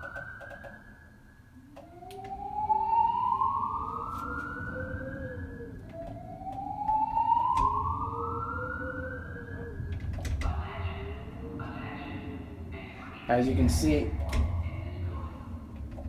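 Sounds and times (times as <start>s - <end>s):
alarm whoop tone: 0.0s - 10.0s
rumble of wind: 1.3s - 16.0s.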